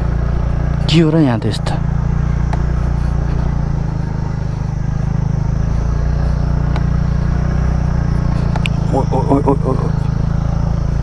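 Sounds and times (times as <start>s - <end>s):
scooter engine running: 0.0s - 11.0s
light clicks: 8.3s - 8.9s.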